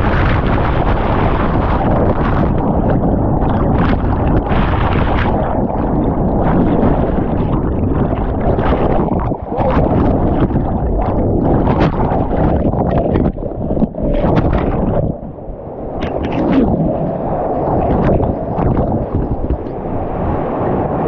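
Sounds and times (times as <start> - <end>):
water splashes: 0.0 - 21.0
whitewater rapid rushing: 8.9 - 10.2.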